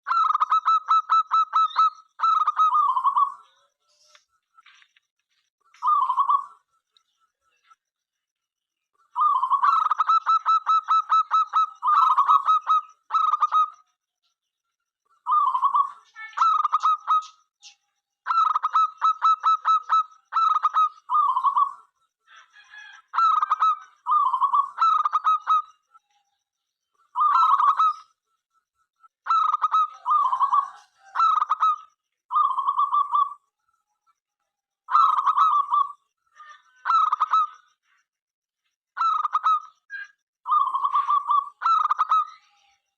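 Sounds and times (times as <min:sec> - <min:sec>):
dove cooing: 0:09.2 - 0:13.6, 0:29.3 - 0:33.4.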